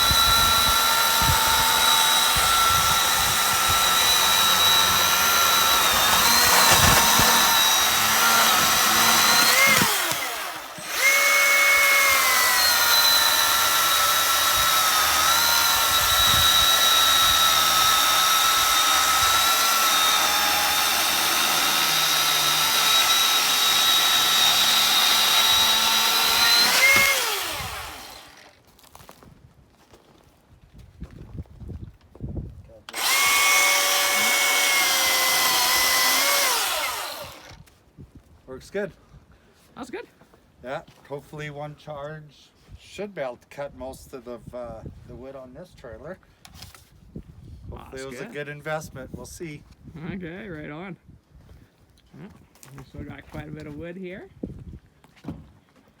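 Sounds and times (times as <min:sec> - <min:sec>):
electric chainsaw cutting wood: 0:00.0 - 0:28.6, 0:32.9 - 0:37.6.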